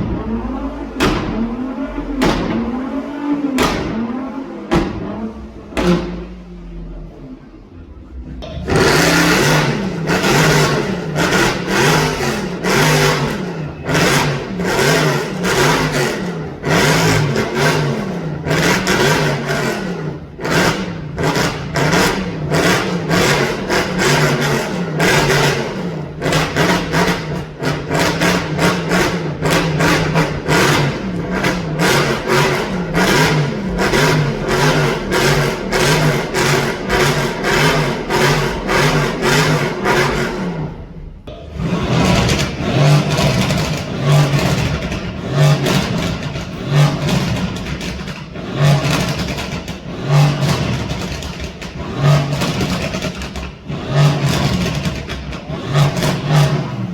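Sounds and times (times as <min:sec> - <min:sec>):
car engine revving: 0:00.0 - 0:56.9.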